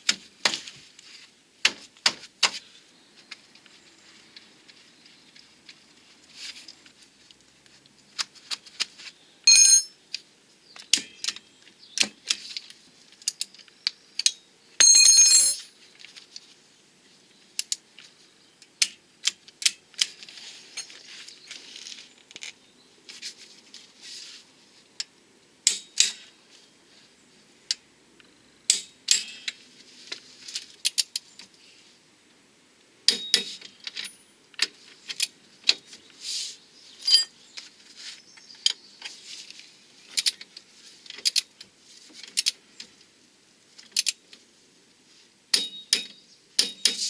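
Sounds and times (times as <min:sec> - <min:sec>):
metal tools clinking: 0:09.5 - 0:09.9, 0:14.8 - 0:15.7, 0:37.0 - 0:37.4.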